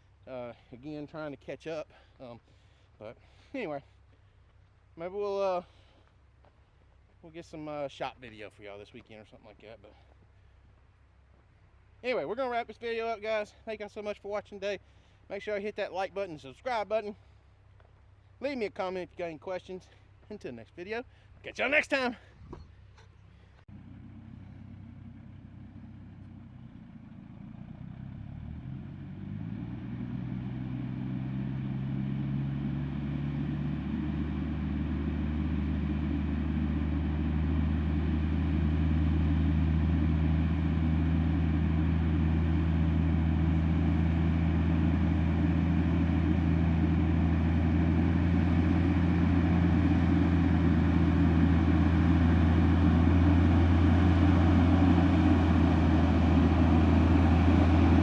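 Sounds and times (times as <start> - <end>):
large engine running: 23.7 - 58.0.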